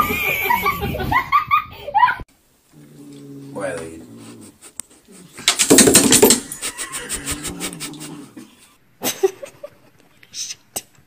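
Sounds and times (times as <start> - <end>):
animal whining moan: 2.7 - 5.4, 6.8 - 8.8
animal pulsing grumble: 7.0 - 8.7.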